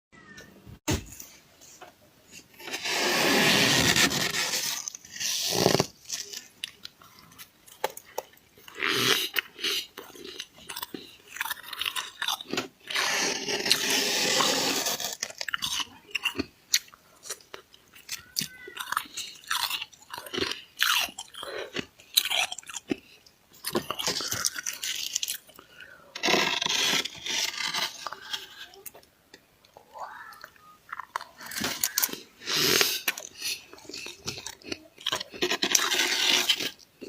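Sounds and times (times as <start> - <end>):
frost crunching and scraping: 2.3 - 16.5, 23.6 - 29.0, 30.3 - 36.9.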